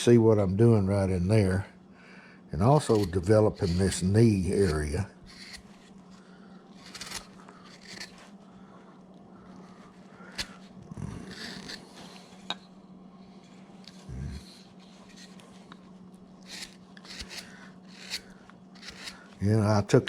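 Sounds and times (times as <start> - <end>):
faint steady hum: 0.0 - 20.0
hand gouge cutting wood: 2.6 - 5.9, 6.8 - 8.2, 9.7 - 12.2, 16.4 - 19.3.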